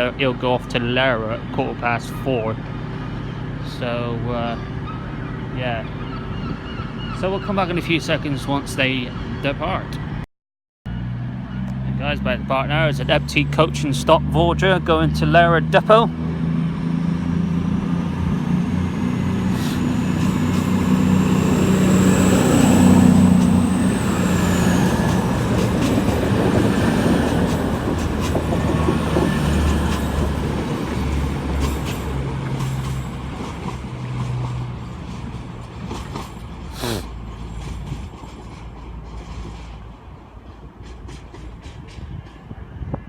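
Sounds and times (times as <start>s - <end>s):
diesel train pulling away: 0.0s - 9.8s, 10.9s - 42.9s
high engine whine: 16.1s - 32.0s.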